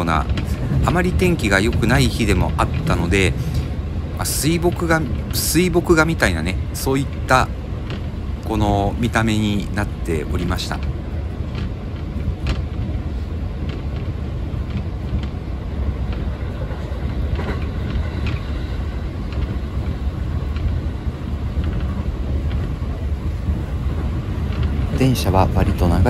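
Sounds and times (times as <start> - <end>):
train wheels rumbling on rail: 0.0 - 26.0
faint clicks: 13.6 - 20.9.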